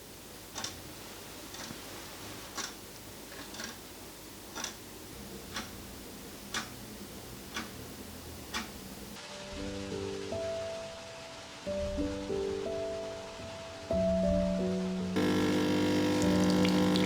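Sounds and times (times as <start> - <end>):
faint room hiss: 0.0 - 17.0
clock ticking: 0.5 - 0.8, 1.5 - 1.7, 2.5 - 2.8, 3.4 - 3.8, 4.4 - 9.2
soft music: 9.2 - 17.0.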